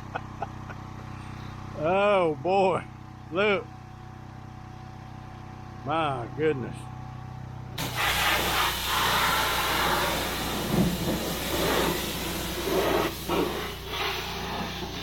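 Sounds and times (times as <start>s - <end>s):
engine humming: 0.0s - 15.0s
pressure washer spray hissing: 7.8s - 15.0s.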